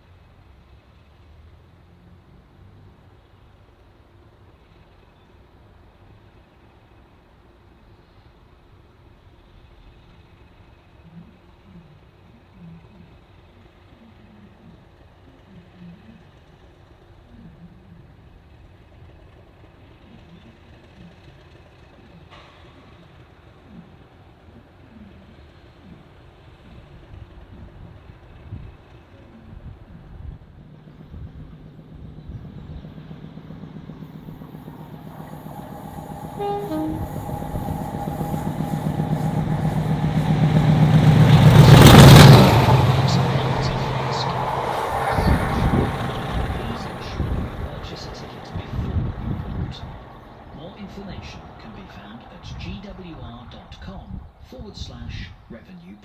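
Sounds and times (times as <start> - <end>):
low engine rumble: 9.4 - 55.8
two-tone train horn: 34.0 - 48.6.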